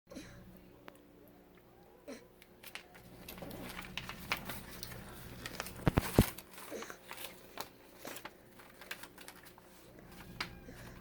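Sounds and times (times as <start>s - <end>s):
handling clicks and rustling: 2.6s - 10.6s.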